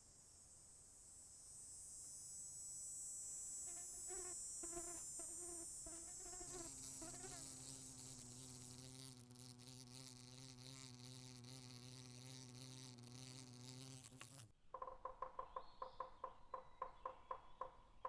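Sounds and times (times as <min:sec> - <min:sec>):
flying insect buzzing: 0:02.0 - 0:14.5.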